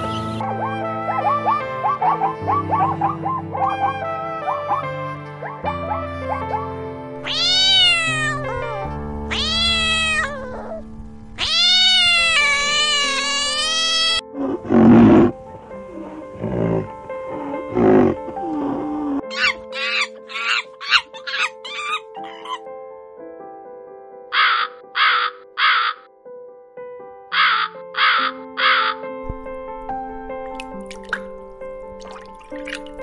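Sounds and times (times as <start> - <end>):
background music: 0.0 - 33.0
cat meowing: 7.2 - 10.8, 11.4 - 15.3
monkey call: 17.4 - 22.6, 24.3 - 26.0, 27.3 - 29.0.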